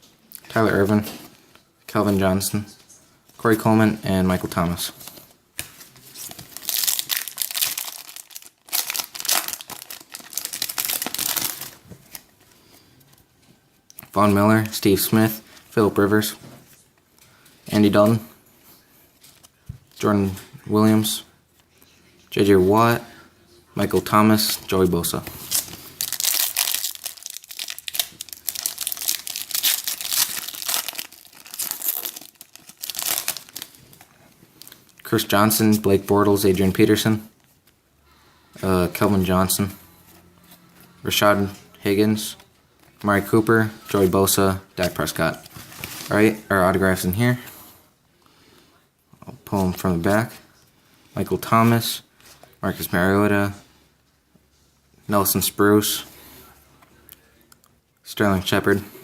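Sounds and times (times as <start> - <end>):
foil wrapper tearing and crinkling: 6.3 - 11.8, 25.5 - 35.0.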